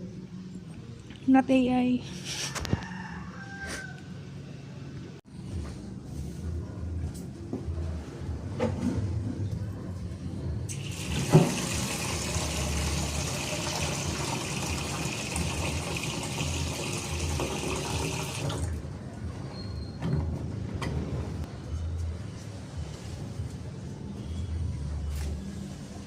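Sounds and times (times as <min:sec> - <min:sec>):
water running from a tap: 0:10.7 - 0:18.7.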